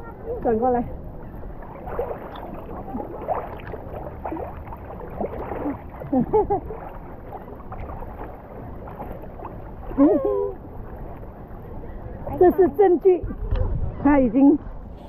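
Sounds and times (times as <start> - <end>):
water washing: 0.3 - 13.2
wind noise: 13.2 - 15.0.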